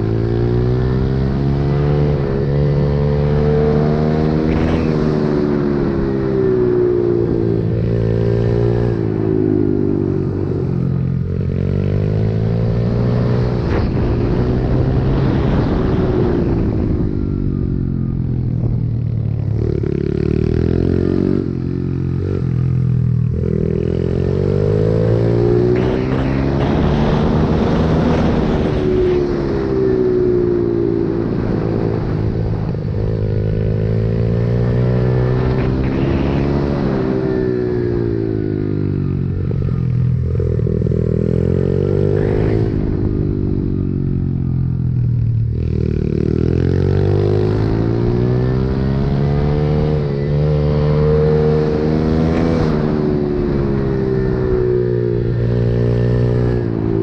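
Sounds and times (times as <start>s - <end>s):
pit bike engine revving: 23.3s - 29.7s.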